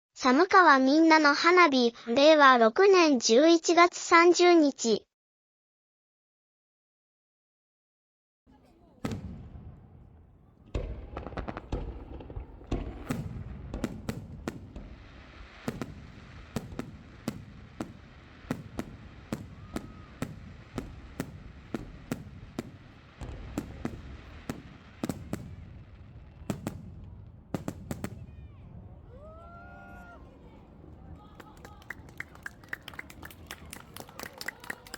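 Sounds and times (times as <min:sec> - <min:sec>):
firework shells bursting: 0:08.6 - 0:28.2.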